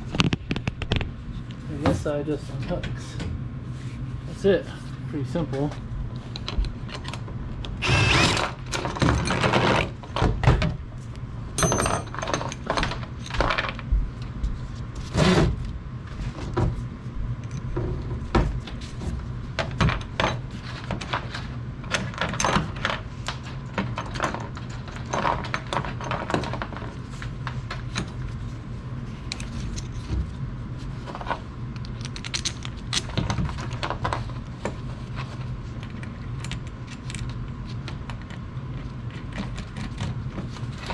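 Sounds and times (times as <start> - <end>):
metal tools clanking and rattling: 11.6 - 12.8.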